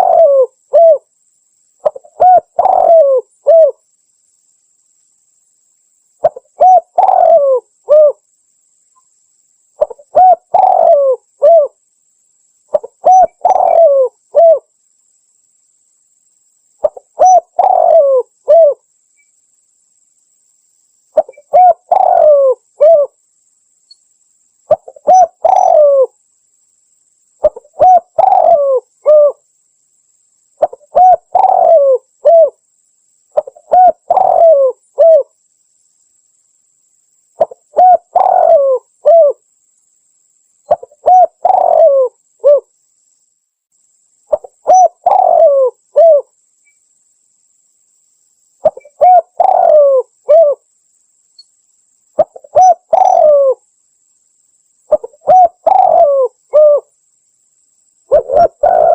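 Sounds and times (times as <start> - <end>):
dove cooing: 0.0 - 1.1, 1.8 - 3.8, 6.2 - 8.2, 9.8 - 11.8, 12.7 - 14.7, 16.8 - 18.8, 21.2 - 23.2, 24.7 - 26.2, 27.4 - 29.4, 30.6 - 32.6, 33.4 - 35.3, 37.4 - 39.4, 40.7 - 42.7, 44.3 - 46.3, 48.6 - 50.6, 52.2 - 53.6, 54.9 - 56.9, 58.1 - 58.9.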